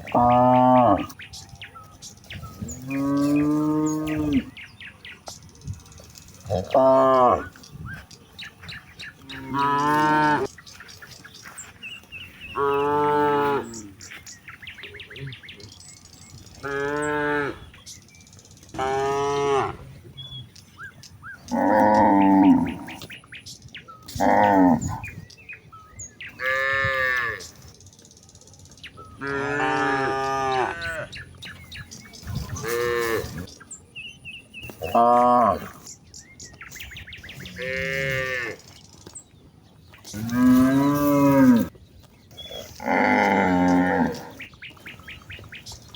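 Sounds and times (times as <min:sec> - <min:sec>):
cattle mooing: 0:09.3 - 0:10.5, 0:32.6 - 0:33.4, 0:37.4 - 0:38.7, 0:40.1 - 0:41.7, 0:42.5 - 0:44.5.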